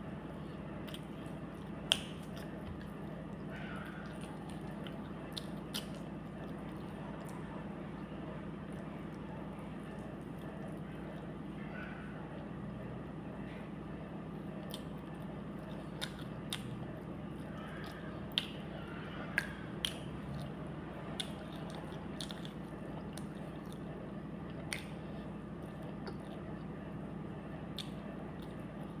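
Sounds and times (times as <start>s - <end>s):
steady low hum: 0.0s - 29.0s
person chewing: 0.3s - 11.4s, 14.4s - 29.0s
mouth clicks and smacks: 1.8s - 3.2s, 3.8s - 7.4s, 14.6s - 16.8s, 17.4s - 18.7s, 19.3s - 20.5s, 21.1s - 23.8s, 24.5s - 25.2s, 27.7s - 28.6s.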